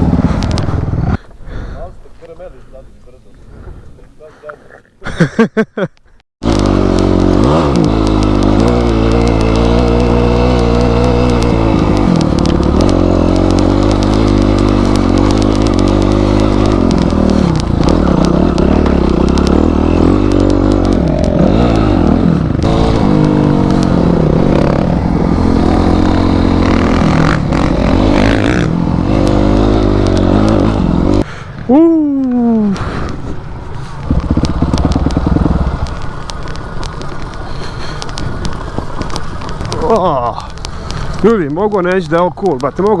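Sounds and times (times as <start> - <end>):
motorcycle engine revving: 0.0 - 1.2, 6.4 - 43.0.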